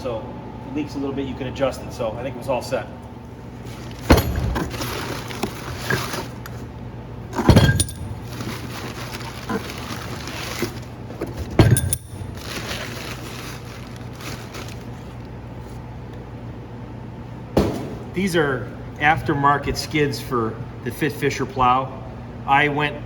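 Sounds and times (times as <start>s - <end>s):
steady low hum: 0.0s - 23.0s
loud metallic clanks: 4.0s - 5.1s, 7.4s - 8.4s
steel tools clinking: 7.4s - 8.5s.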